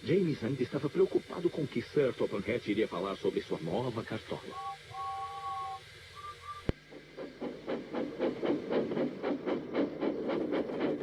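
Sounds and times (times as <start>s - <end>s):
steam engine chuffing: 0.0s - 11.0s
steam locomotive whistle: 4.4s - 6.7s.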